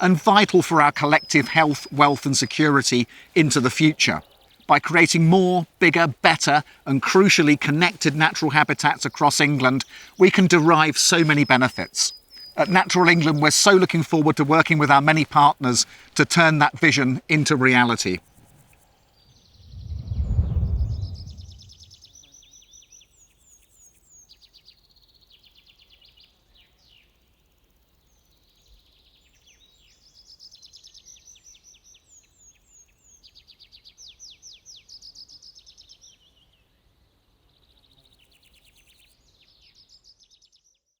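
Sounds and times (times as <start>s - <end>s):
songbirds singing: 0.0s - 18.2s
low rumbling swell: 19.6s - 21.9s.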